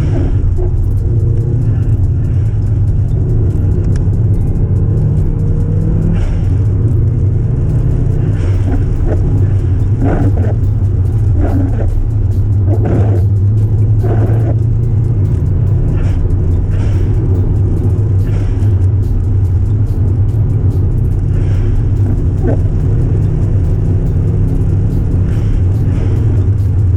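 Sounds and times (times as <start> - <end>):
car engine low drone: 0.0 - 26.9
road noise: 0.0 - 26.9.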